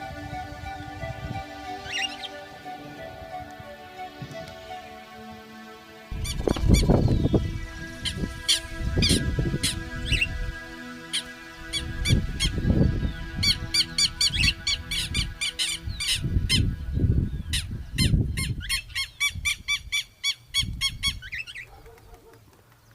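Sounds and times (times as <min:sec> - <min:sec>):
wind rumbling on microphone: 0:00.0 - 0:02.2, 0:06.1 - 0:10.8, 0:11.4 - 0:21.9
bird chirping rapidly: 0:01.8 - 0:02.5, 0:06.1 - 0:21.7.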